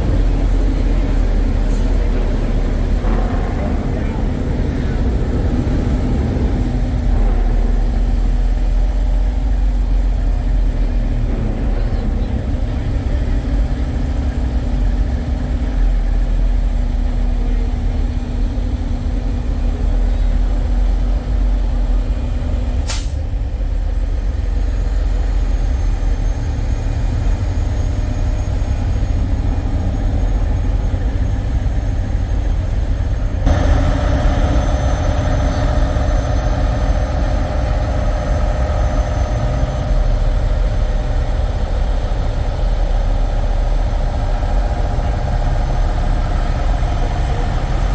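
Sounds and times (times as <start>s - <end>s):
truck engines idling: 0.0s - 47.9s
air hiss: 22.9s - 23.2s
steady higher hum: 26.4s - 47.9s.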